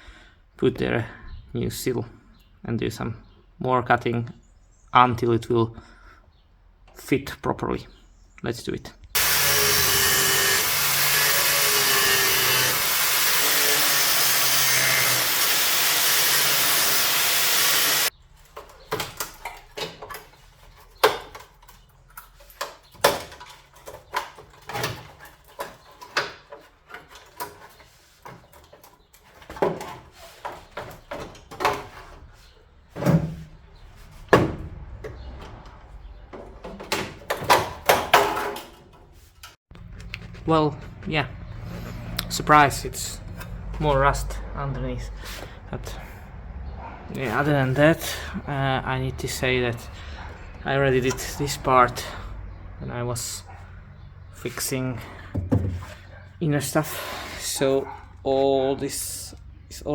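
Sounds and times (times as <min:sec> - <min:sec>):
power tool cutting sheet metal: 0:09.2 - 0:18.1.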